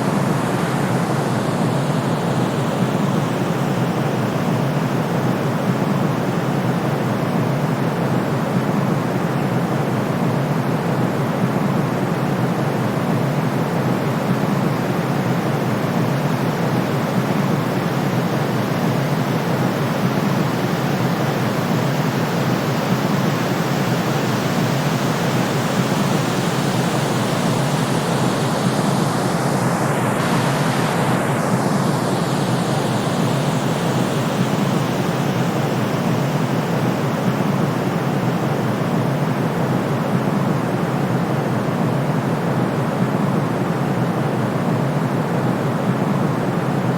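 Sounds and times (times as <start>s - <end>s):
deep rushing white noise: 23.3s - 40.9s.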